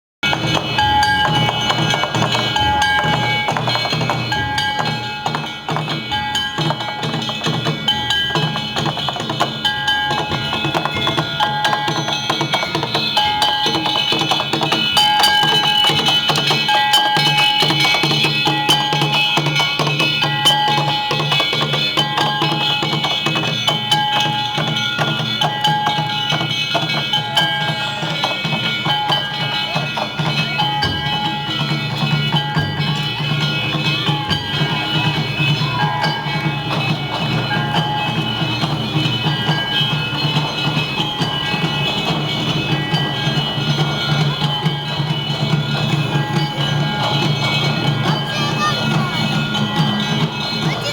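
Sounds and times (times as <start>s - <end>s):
metal hand gongs clanging: 0.2s - 50.9s
taiko drums: 0.2s - 50.9s.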